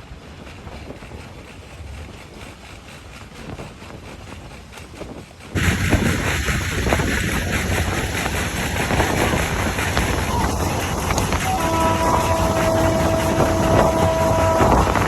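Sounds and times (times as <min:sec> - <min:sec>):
wind on microphone: 0:03.4 - 0:15.0.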